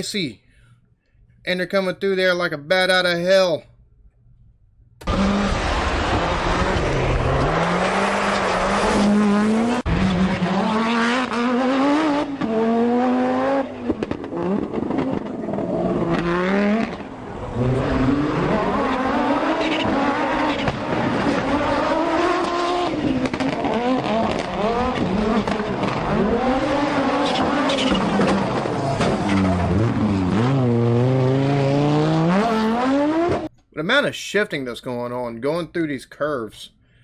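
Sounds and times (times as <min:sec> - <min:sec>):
rally car engine at full throttle: 0:05.0 - 0:33.5.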